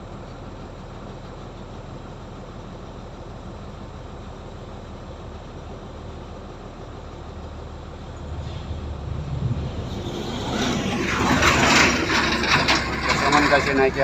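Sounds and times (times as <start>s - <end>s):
heavy diesel machinery running: 0.0s - 14.0s
rattling and clanking: 7.4s - 14.0s.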